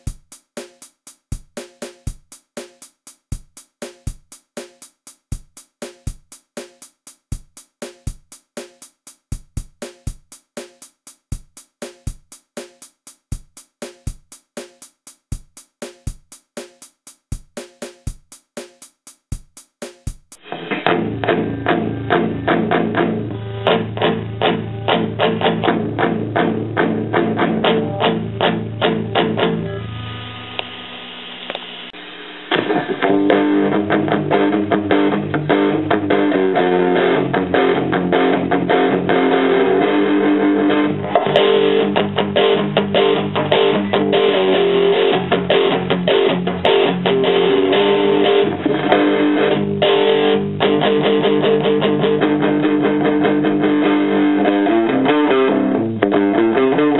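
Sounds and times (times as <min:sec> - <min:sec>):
electric guitar chords: 0:20.4 - 0:56.9.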